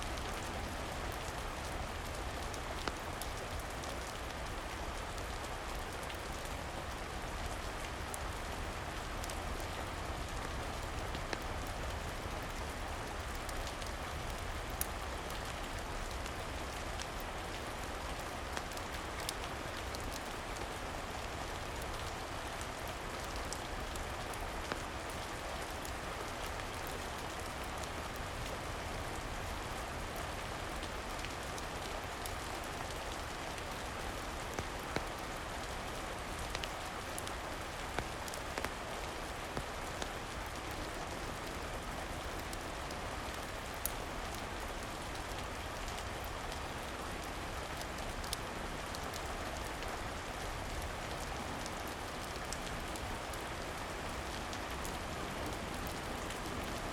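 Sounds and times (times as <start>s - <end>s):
rain falling: 0.0s - 56.9s.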